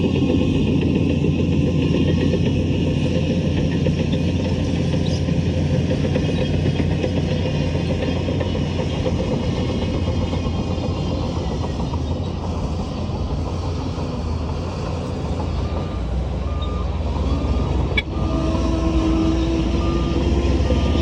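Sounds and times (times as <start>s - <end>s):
heavy diesel machinery rumbling: 0.0s - 21.0s
reversing alarm beeping: 13.8s - 21.0s.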